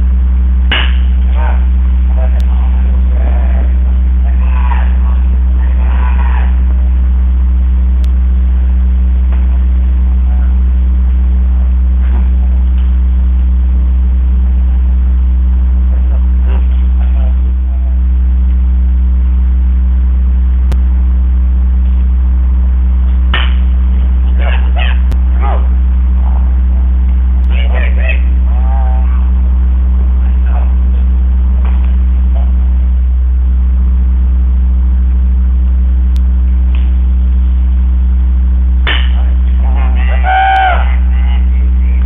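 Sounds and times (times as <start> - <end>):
loud steady low hum: 0.0 - 42.0
distant voices calling: 0.7 - 7.1, 23.0 - 31.6, 38.9 - 42.0.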